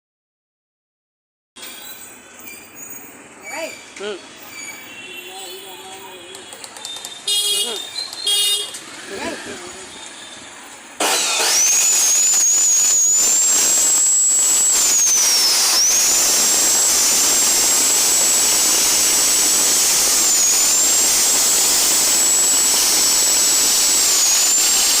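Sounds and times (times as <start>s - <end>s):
chop saw motor whining: 11.0s - 25.0s.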